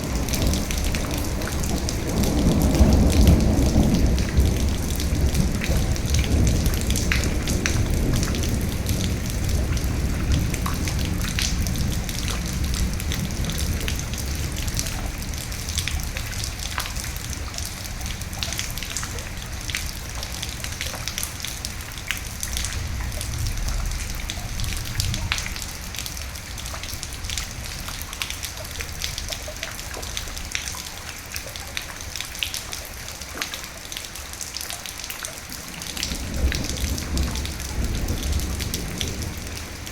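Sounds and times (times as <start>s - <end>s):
low roll of thunder: 0.0s - 19.2s, 35.6s - 39.9s
steady rain: 0.0s - 39.9s.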